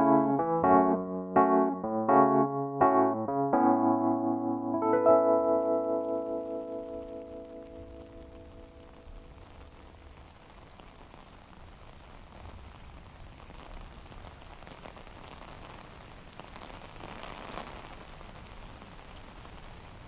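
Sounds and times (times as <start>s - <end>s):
steady rain falling: 4.8s - 20.0s.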